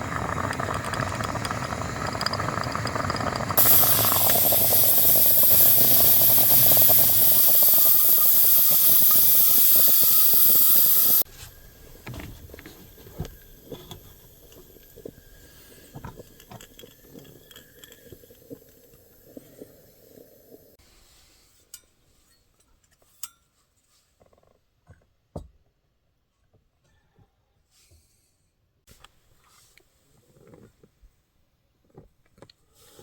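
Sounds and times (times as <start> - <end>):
gas stove burner hissing: 0.0 - 17.4.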